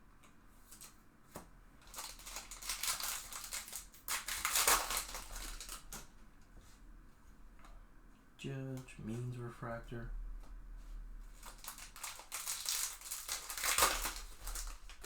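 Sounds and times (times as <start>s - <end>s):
foil wrapper crinkling: 1.8s - 6.1s, 11.3s - 15.0s.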